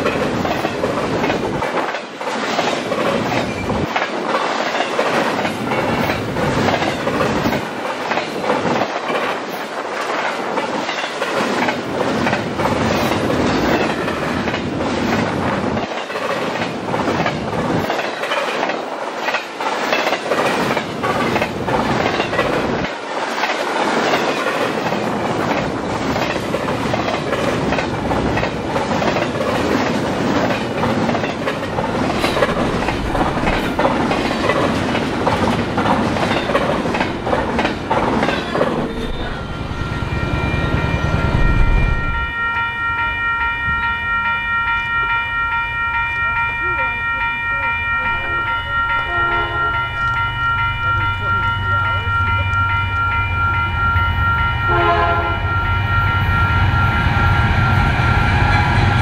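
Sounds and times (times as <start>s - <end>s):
train wheels clattering over rail joints: 0.0s - 39.0s.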